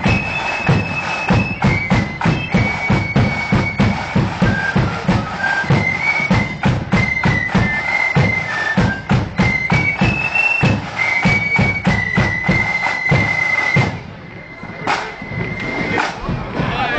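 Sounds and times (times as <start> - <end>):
marching band melody: 0.0 - 16.9.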